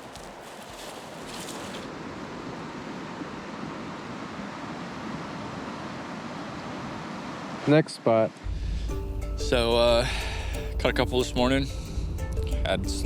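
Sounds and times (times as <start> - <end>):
fast river rushing: 0.0 - 8.2.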